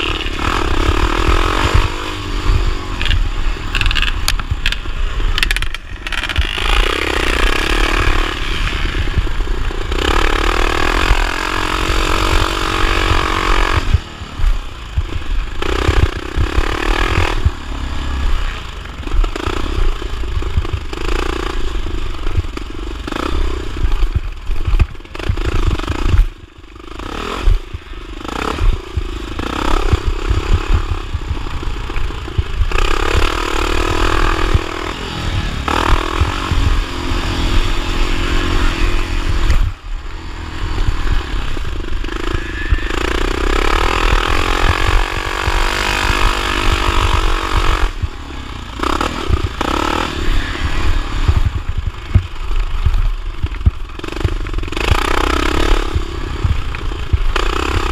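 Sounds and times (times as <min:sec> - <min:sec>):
motorcycle engine revving: 0:00.0 - 0:57.9
low thumps: 0:28.5 - 0:55.0.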